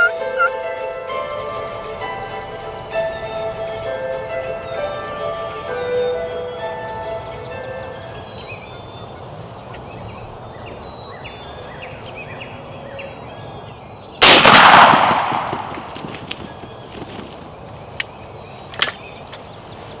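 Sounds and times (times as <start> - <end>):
small birds chirping: 0.0 - 14.4, 15.2 - 20.0
shotgun shot: 14.2 - 16.7.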